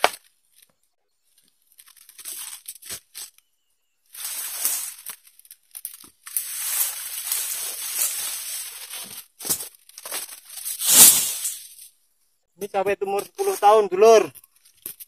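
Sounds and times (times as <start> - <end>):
palm fronds rustling and scraping: 0.0 - 3.5, 4.1 - 11.9.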